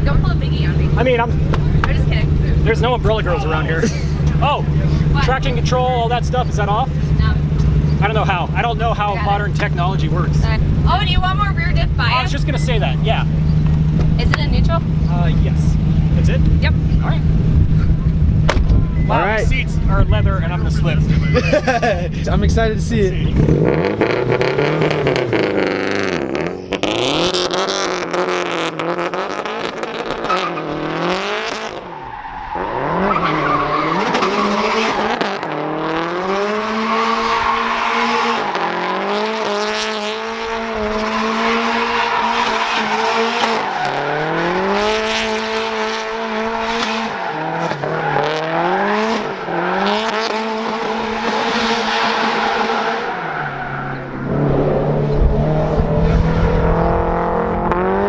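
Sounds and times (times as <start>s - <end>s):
tyres squealing and skidding: 0.0s - 16.1s, 29.7s - 56.4s
car engine revving: 0.0s - 58.0s.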